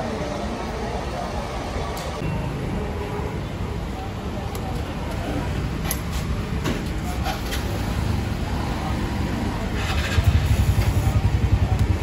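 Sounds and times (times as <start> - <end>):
motorcycle engine idling: 9.6 - 12.0.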